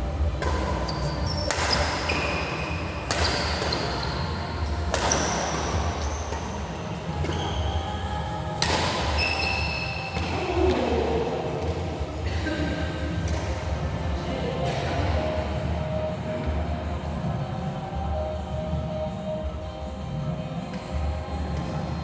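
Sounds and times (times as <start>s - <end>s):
shoe squeaks on court floor: 0.4s - 8.2s, 8.9s - 10.5s
racket hitting shuttlecock: 0.4s - 11.0s, 13.2s - 13.9s.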